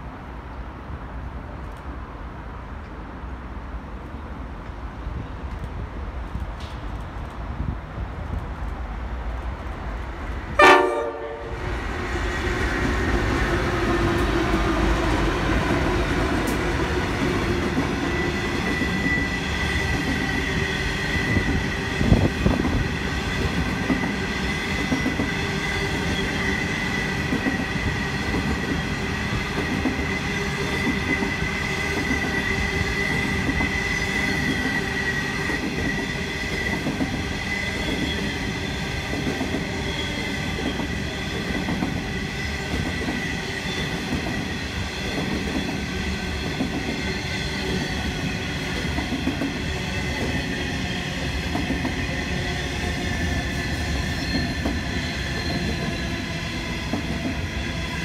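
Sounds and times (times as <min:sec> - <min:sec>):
train rolling rumble: 0:00.0 - 0:58.0
train horn blast: 0:10.6 - 0:11.6
train clatter: 0:12.7 - 0:56.1, 0:56.8 - 0:58.0
high wheel squeal: 0:54.0 - 0:56.2.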